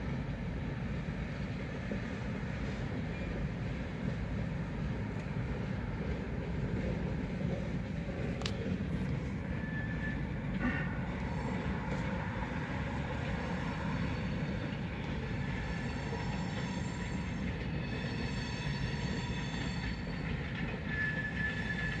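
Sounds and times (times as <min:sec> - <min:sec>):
train wheels rumbling on rails: 0:00.0 - 0:22.0
wheel squeal: 0:09.4 - 0:10.4, 0:15.6 - 0:22.0.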